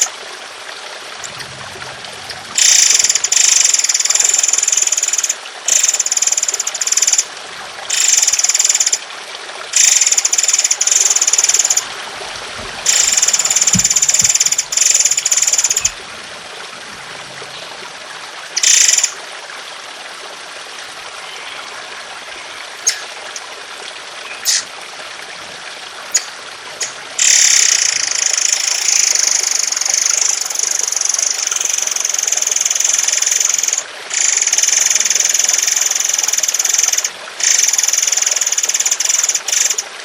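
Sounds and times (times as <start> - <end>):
running water trickle: 0.0 - 40.0
songbird rattling trills: 1.2 - 7.3, 9.8 - 11.9, 12.9 - 16.0, 22.3 - 23.5, 24.2 - 25.4, 26.0 - 35.2.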